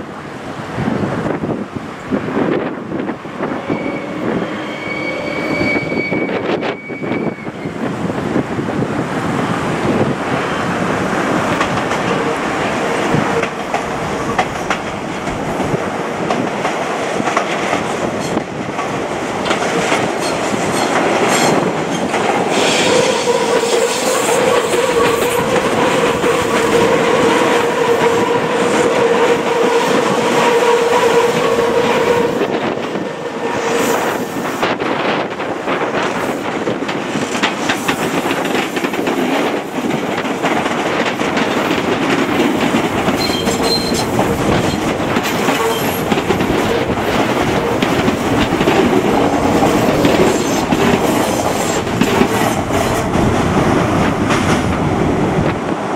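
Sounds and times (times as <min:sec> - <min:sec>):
electric train rumbling past: 0:00.0 - 0:55.9
wheels clicking over rail joints: 0:11.4 - 0:28.0, 0:34.6 - 0:55.6.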